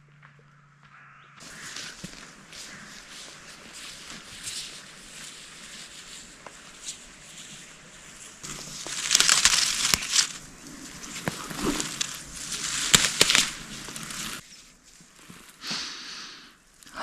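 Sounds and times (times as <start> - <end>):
dry vegetation rustling and crunching: 0.9 - 17.0.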